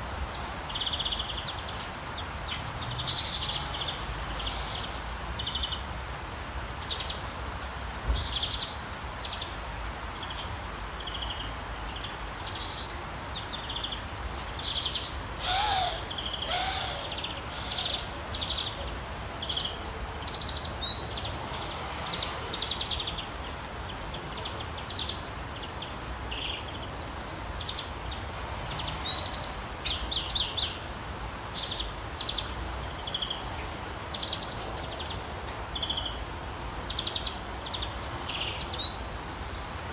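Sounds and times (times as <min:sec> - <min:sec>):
rain hissing: 0:02.4 - 0:06.8, 0:15.0 - 0:24.8
birds chirping: 0:14.7 - 0:19.6.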